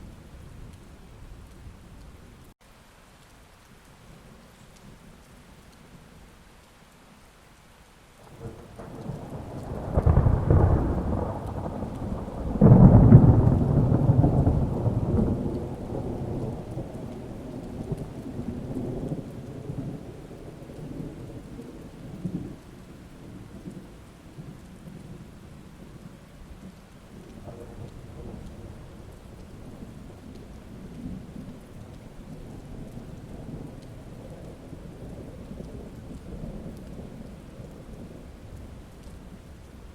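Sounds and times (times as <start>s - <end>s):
steady rain: 0.0s - 39.9s
thunder rumbling and clapping: 8.2s - 39.9s.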